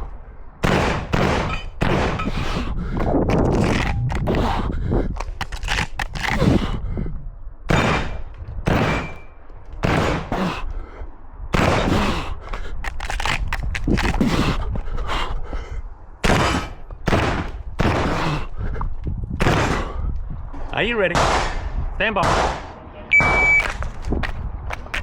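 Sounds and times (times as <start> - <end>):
shotgun shots with echo: 0.6 - 2.4, 7.7 - 9.2, 9.8 - 10.4, 11.6 - 12.0, 16.2 - 18.2, 21.1 - 23.4.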